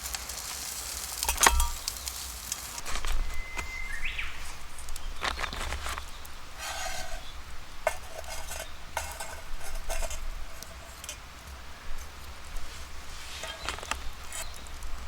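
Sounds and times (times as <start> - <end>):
food sizzling: 0.0 - 15.0
utensil clinking against metal: 1.2 - 1.9, 6.6 - 12.7, 13.4 - 14.9
metal utensil scraping a pan: 1.2 - 2.0, 5.4 - 14.9.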